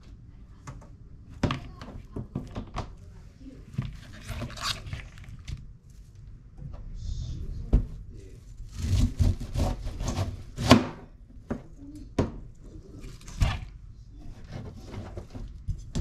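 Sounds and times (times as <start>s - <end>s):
knife chopping on cutting board: 8.8s - 11.0s.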